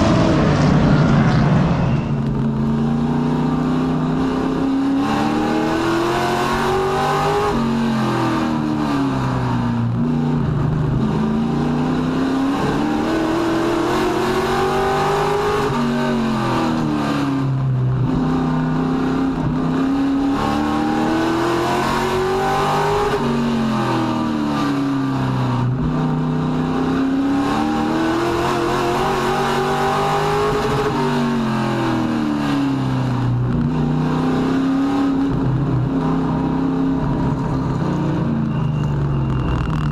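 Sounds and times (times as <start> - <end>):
race truck engine accelerating: 0.0 - 9.8.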